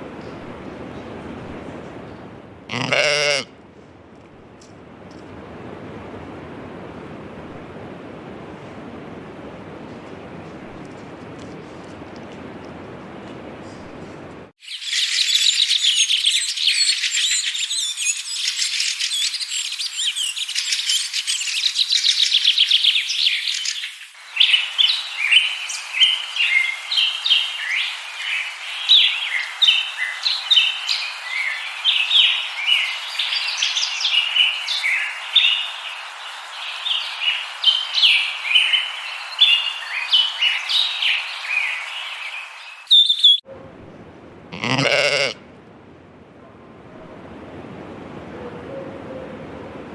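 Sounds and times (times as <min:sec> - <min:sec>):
small birds chirping: 0:14.6 - 0:43.4
small birds trilling: 0:14.6 - 0:43.4.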